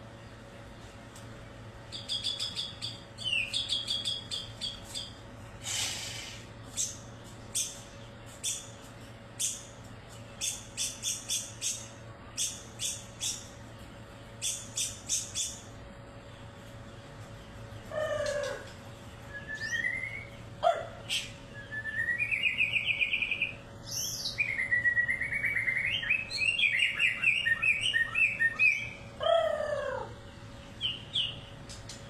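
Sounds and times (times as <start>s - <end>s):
faint steady hum: 0.0s - 32.0s
bird harsh rasp: 5.6s - 7.0s.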